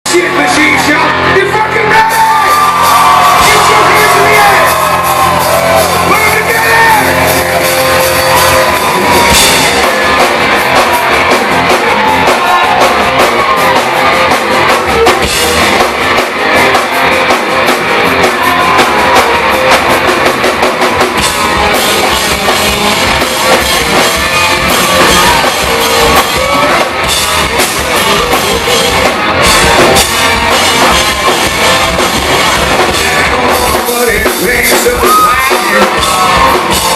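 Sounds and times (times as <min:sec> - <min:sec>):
drums: 0:00.0 - 0:36.9
electric guitars: 0:00.1 - 0:36.9.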